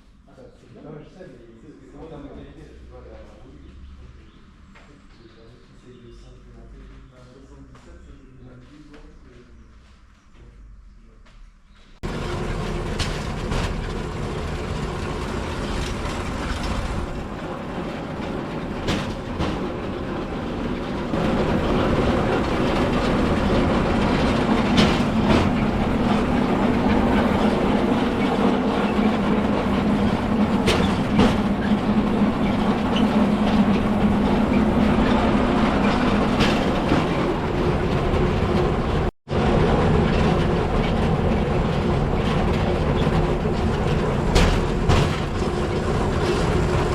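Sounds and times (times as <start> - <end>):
steel wheels rumbling on rails: 12.0 - 46.9
wheels clicking over rail joints: 12.0 - 46.9.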